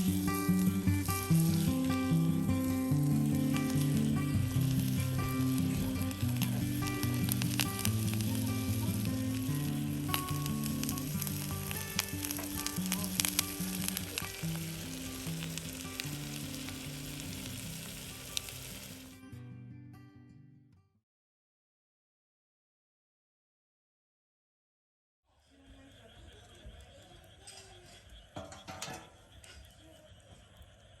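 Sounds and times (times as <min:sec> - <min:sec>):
low held notes: 0:00.0 - 0:18.9
dense sizzling crackle: 0:00.0 - 0:19.3.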